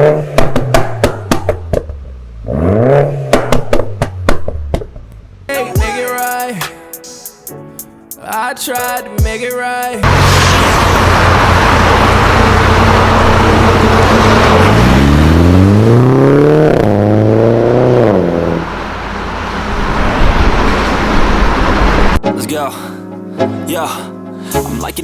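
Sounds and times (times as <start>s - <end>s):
car engine revving: 0.0s - 5.0s, 10.0s - 22.2s.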